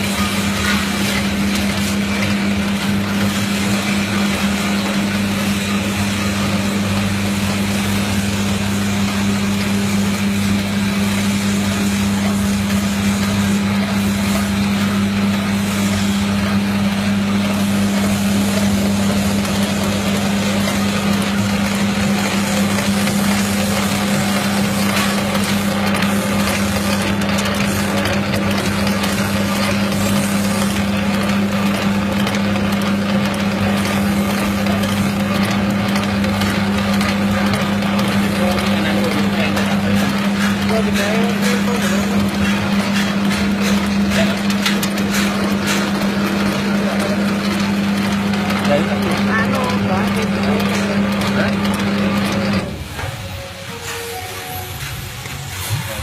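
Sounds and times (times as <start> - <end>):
machine motor humming and whirring: 0.0 - 56.0.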